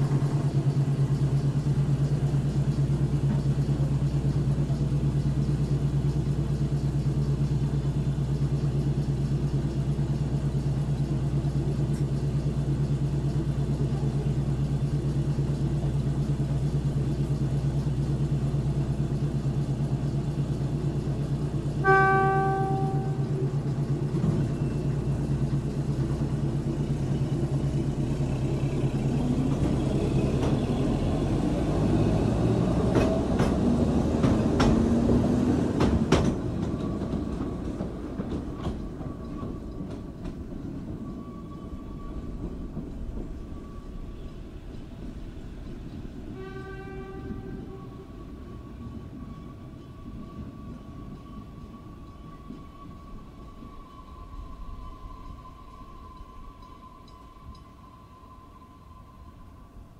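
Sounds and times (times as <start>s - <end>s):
diesel locomotive engine running: 0.0s - 59.9s
train horn blast: 21.8s - 23.6s, 46.3s - 48.2s.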